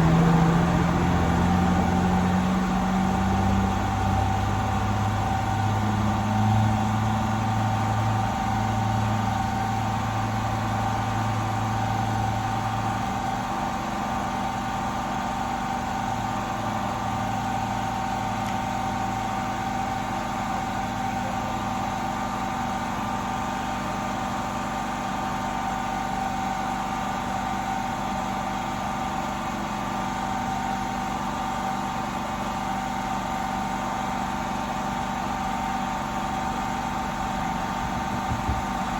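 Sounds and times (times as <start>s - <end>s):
low drone: 0.0s - 7.1s
mechanical hum with whine: 0.0s - 38.9s.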